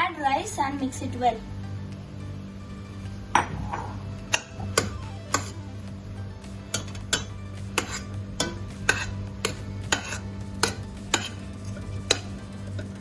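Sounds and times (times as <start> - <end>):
low hum: 1.1 - 13.0
utensil scraping a pan: 7.2 - 8.2, 8.8 - 13.0.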